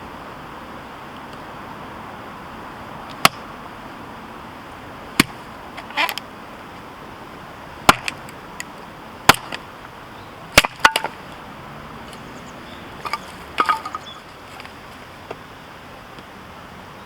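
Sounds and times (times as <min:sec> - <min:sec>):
hatchet chopping firewood: 0:03.1 - 0:03.5, 0:05.2 - 0:05.4, 0:07.8 - 0:08.3, 0:09.2 - 0:09.7, 0:10.5 - 0:11.2, 0:13.0 - 0:14.8
wood crackle: 0:13.0 - 0:14.8.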